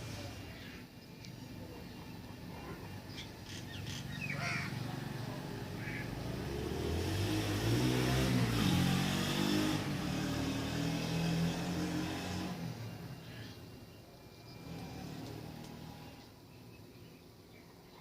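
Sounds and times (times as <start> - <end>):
bird chirps: 0.5 - 4.6
motor vehicle passing: 1.4 - 16.5.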